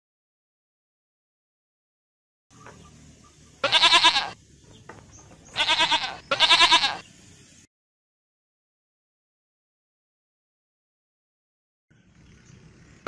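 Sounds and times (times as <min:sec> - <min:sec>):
goat bleating: 0:03.6 - 0:04.4, 0:05.5 - 0:07.1.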